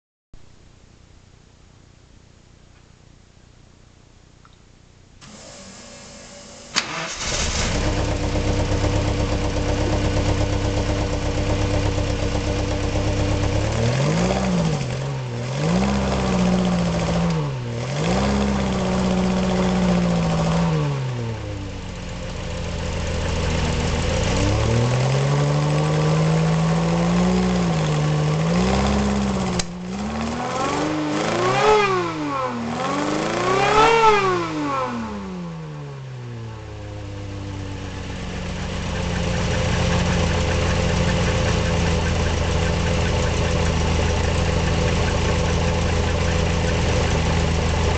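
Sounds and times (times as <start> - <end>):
car engine starting click: 6.7 - 7.7, 29.5 - 29.8
car engine idling: 6.7 - 30.0, 36.5 - 47.9
car engine revving: 6.8 - 36.2, 36.9 - 47.9.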